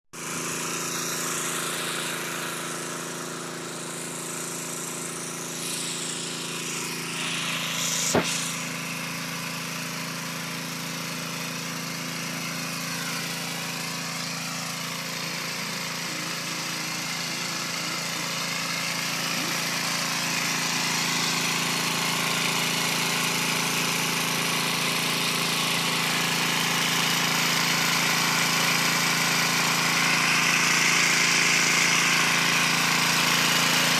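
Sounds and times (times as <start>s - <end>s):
small petrol engine running: 0.2s - 33.9s
sharp click: 8.0s - 8.5s.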